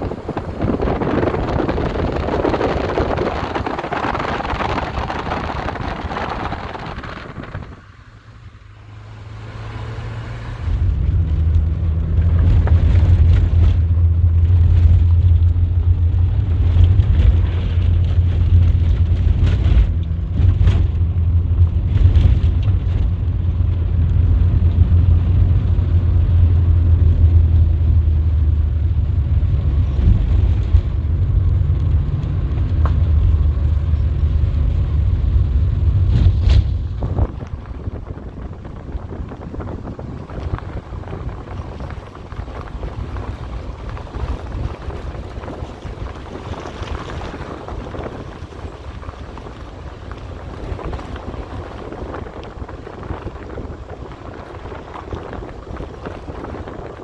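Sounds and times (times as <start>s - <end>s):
rushing noise: 0.0s - 14.9s, 33.4s - 57.0s
vehicle engine running: 0.0s - 57.0s.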